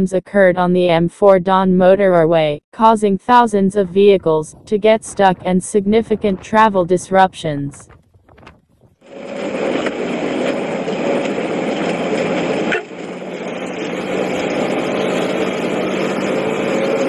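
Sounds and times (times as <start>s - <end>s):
road traffic engines running: 9.1s - 17.0s.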